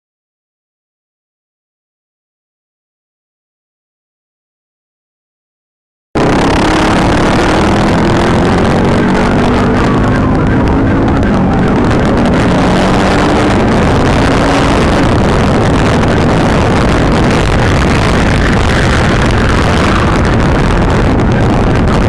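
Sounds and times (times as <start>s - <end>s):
car engine accelerating: 6.2s - 22.0s
road and wind noise: 6.2s - 22.0s.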